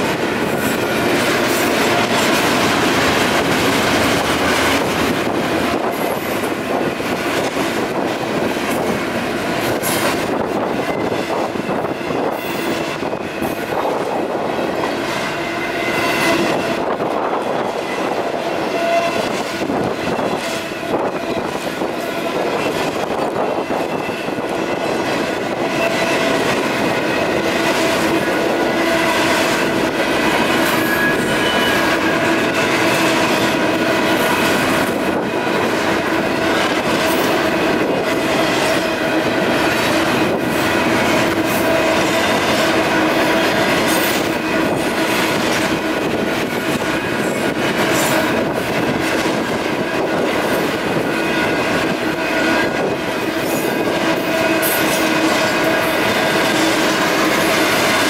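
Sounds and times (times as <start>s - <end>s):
freight train wheels rumbling: 0.0s - 58.0s
crossing warning bell ringing: 17.6s - 35.9s, 50.0s - 58.0s.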